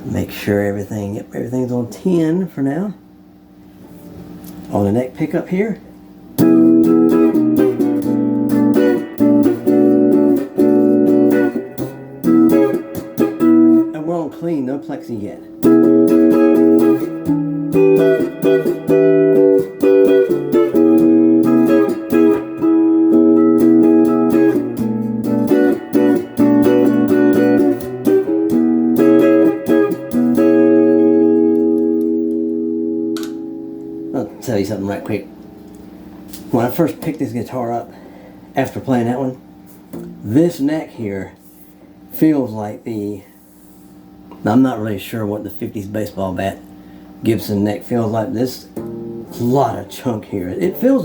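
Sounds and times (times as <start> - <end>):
clean electric guitar chords strummed: 6.4 - 40.6, 48.1 - 51.0.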